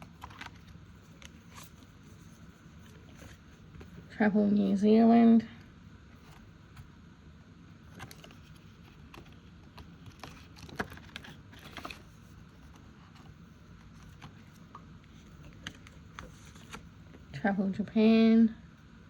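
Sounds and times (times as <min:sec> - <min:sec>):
paper envelopes rustling: 0:00.0 - 0:04.1, 0:07.8 - 0:17.3.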